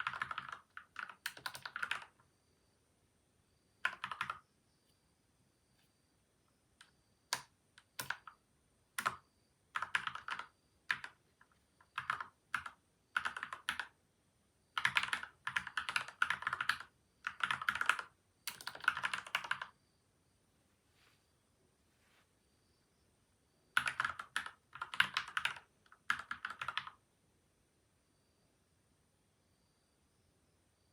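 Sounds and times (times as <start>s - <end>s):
typing on mechanical keyboard: 0.0s - 2.3s, 3.8s - 4.4s, 6.8s - 8.4s, 9.0s - 14.0s, 14.8s - 19.7s, 23.8s - 27.0s.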